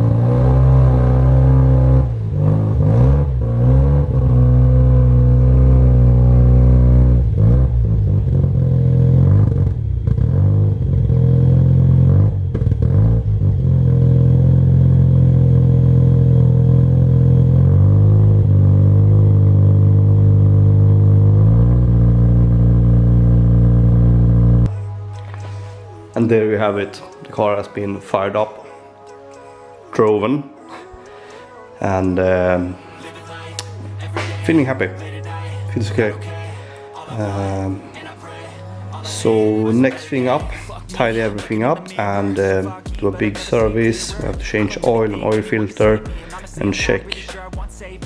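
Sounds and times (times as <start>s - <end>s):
rotary engine revving: 0.0s - 24.7s.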